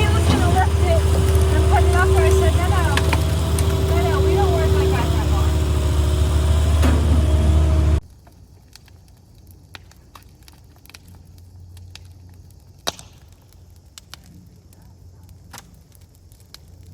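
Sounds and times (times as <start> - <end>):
vehicle engine running: 0.0 - 8.0
small crackles and snaps: 8.0 - 16.9.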